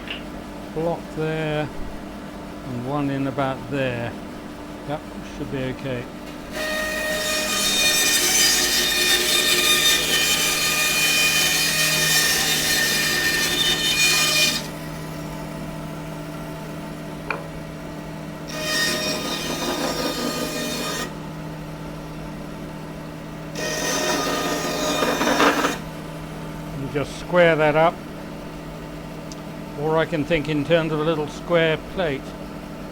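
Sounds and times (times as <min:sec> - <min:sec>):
saw blade cutting wood: 0:06.5 - 0:14.7, 0:18.5 - 0:21.2, 0:23.6 - 0:25.8.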